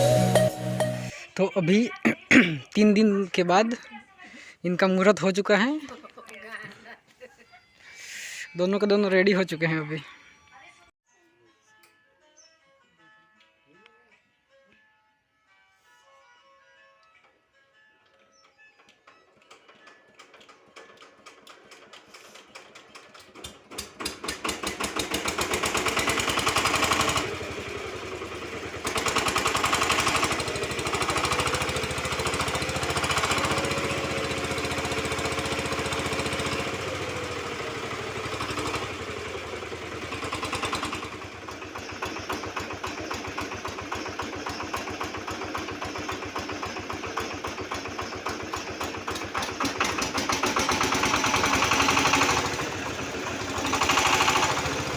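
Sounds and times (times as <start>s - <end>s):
diesel engine knocking steadily: 22.6s - 54.9s.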